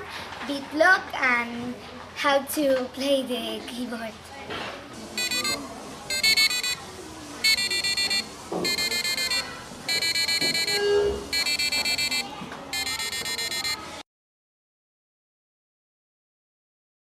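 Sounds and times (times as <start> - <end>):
electronic buzzer beeping: 5.2 - 6.8, 7.4 - 14.0.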